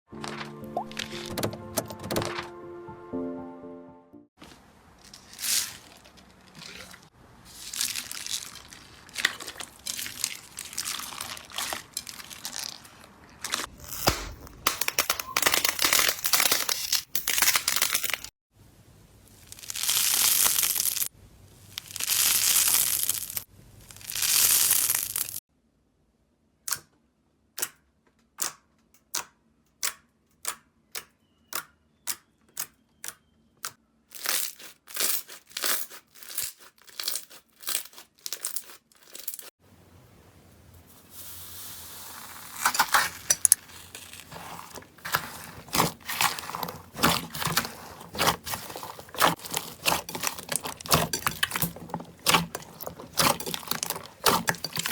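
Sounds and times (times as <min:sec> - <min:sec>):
slime crinkling and tearing: 0:05.0 - 0:18.3, 0:19.4 - 0:21.1, 0:21.7 - 0:25.4, 0:34.1 - 0:39.5, 0:42.1 - 0:54.9
slime popping: 0:43.8 - 0:54.9.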